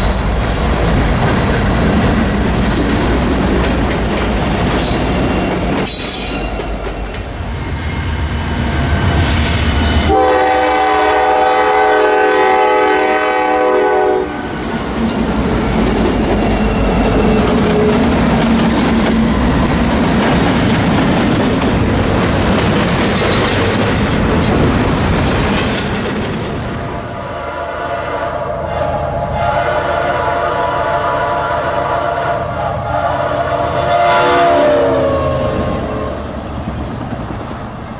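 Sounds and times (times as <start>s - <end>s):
train rumbling over rails: 0.0s - 37.9s
locomotive air horn chord: 10.0s - 14.4s, 27.3s - 36.2s.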